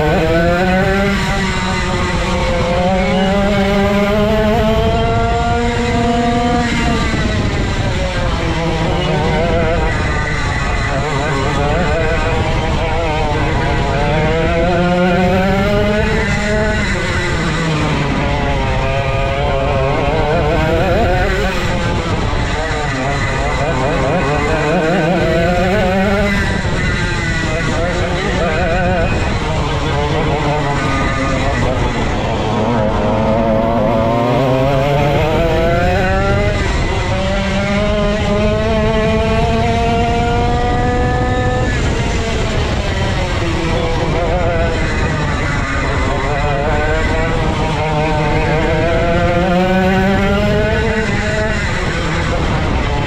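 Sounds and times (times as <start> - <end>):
go-kart engine revving: 0.0 - 53.0.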